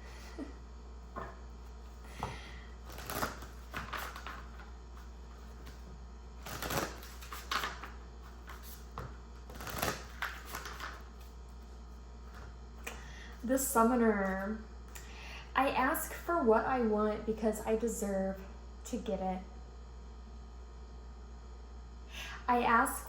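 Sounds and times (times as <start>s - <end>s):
cards being shuffled: 2.8s - 5.8s, 6.4s - 11.3s.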